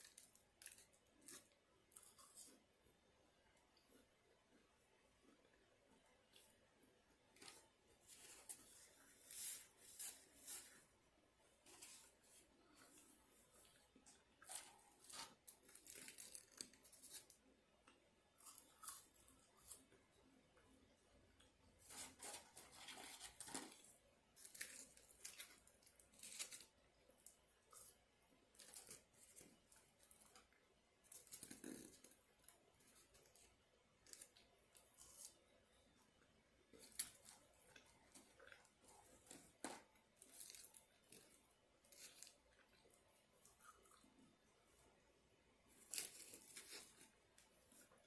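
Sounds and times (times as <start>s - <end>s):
paper wrapping rustling and tearing: 14.5s - 17.4s, 21.8s - 26.8s, 45.7s - 48.0s.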